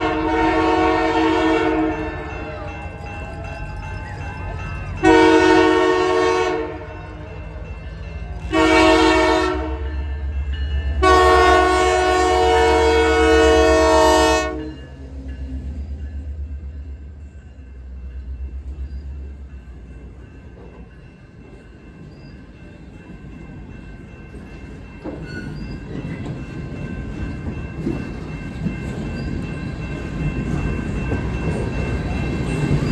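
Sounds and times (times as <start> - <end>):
locomotive air horn blasts: 0.0 - 2.1, 5.0 - 7.0, 8.5 - 10.0, 11.0 - 14.8
low rumble of train: 0.0 - 32.9.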